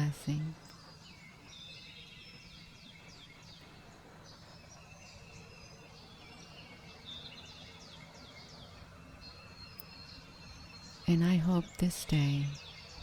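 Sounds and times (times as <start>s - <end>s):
low steady hum: 0.0s - 13.0s
songbirds chirping: 0.0s - 13.0s.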